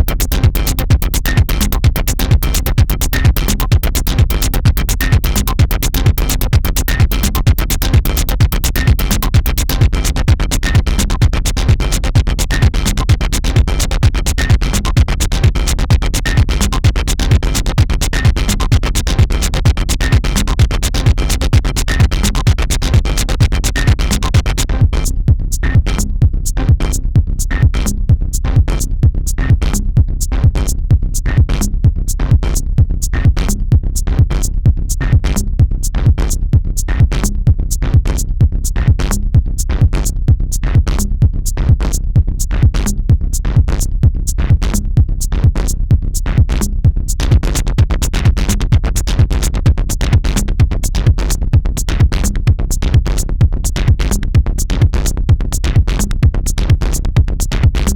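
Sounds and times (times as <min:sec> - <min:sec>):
electronic dance music: 0:00.0 - 0:24.7.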